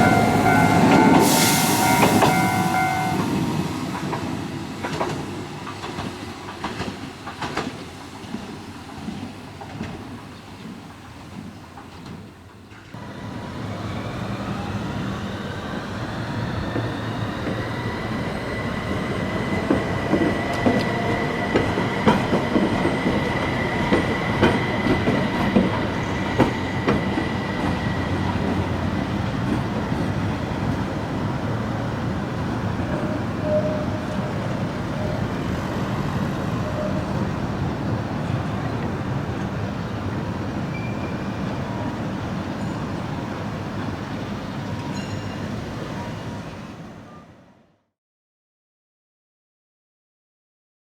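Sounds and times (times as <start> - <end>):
tram motor whine: 0.0 - 6.7, 12.9 - 43.9
rail joint clicks: 0.0 - 31.2, 32.7 - 45.8
wheels rumbling on rail: 0.0 - 47.5.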